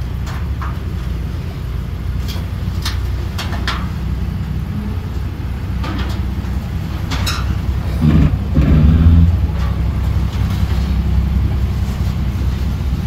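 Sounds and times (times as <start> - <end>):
car engine running slowly: 0.0 - 13.0
short high-pitched squeaks: 8.0 - 9.5.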